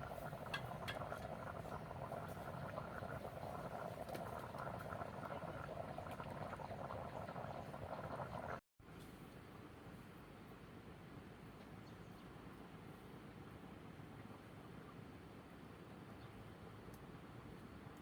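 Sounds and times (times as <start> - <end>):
pot of liquid boiling: 0.0 - 8.6
small pops and clicks: 0.1 - 5.0.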